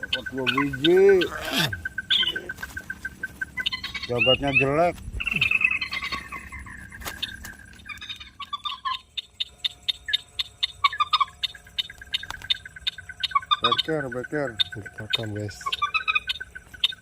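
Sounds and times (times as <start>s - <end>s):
descending animal call: 0.0s - 7.1s.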